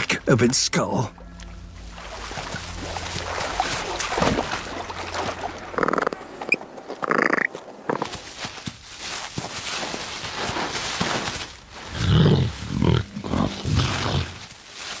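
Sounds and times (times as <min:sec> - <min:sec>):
jaguar growling: 0:11.8 - 0:14.5.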